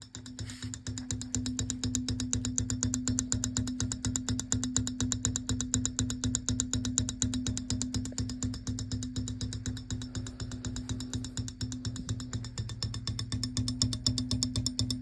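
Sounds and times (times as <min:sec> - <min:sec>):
motor hum: 0:05.4 - 0:15.0
wheel knocking: 0:05.4 - 0:15.0.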